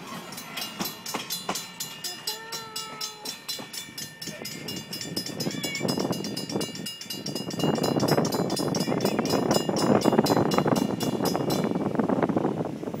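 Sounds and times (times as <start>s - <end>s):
train cars rumbling on rails: 0.0s - 13.0s
wind on microphone: 3.7s - 13.0s.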